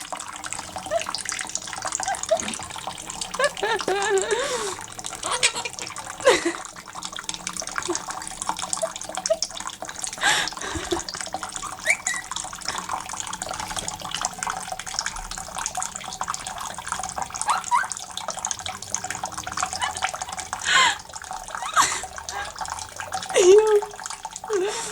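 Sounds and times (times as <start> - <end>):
water running and splashing: 0.0 - 24.9
parrot squeaks: 11.6 - 12.4, 17.4 - 18.0.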